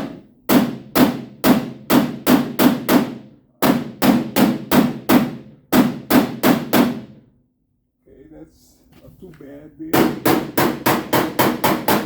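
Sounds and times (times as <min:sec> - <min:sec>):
hammer striking sheet metal: 0:00.0 - 0:07.2, 0:09.9 - 0:12.0.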